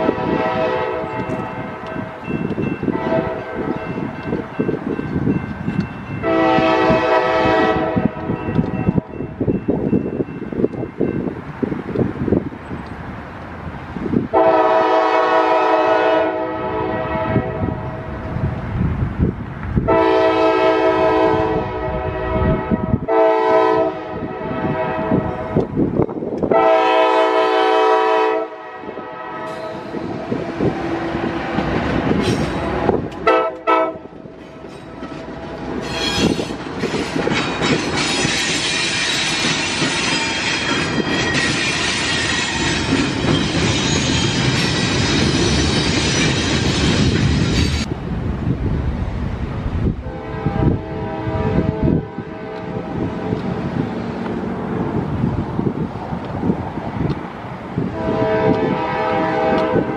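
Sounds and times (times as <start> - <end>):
locomotive air horn blowing: 0.0 - 1.7, 2.9 - 3.7, 6.2 - 8.4, 14.3 - 17.9, 19.9 - 25.5, 26.5 - 30.2, 33.2 - 34.2, 50.0 - 53.5, 57.9 - 59.9.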